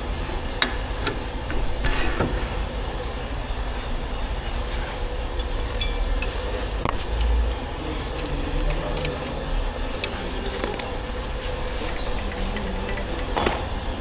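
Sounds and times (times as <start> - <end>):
steady hum: 0.0 - 14.0
metallic clinks of tools: 5.4 - 6.6, 10.0 - 11.0, 12.9 - 13.9.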